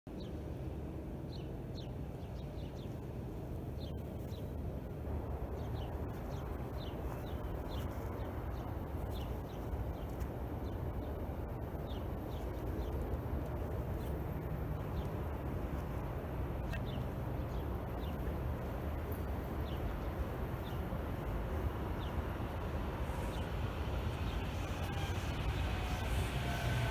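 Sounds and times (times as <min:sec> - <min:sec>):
steady low rumble: 0:00.1 - 0:26.9
small birds chirping: 0:05.4 - 0:26.4.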